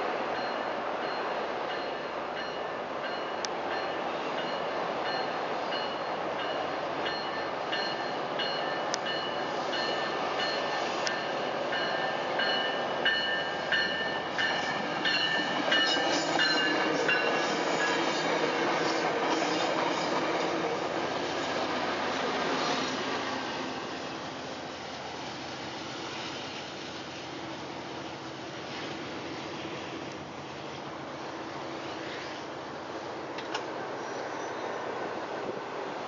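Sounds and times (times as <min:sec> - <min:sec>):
train wheel and rail noise: 0:00.0 - 0:36.0
railroad crossing bell ringing: 0:00.3 - 0:20.4.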